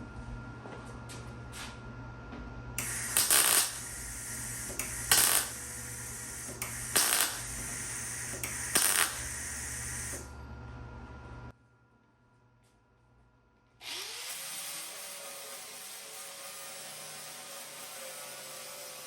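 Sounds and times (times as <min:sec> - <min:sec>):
steady hum: 0:00.0 - 0:13.8
arc welding bursts: 0:02.8 - 0:10.3.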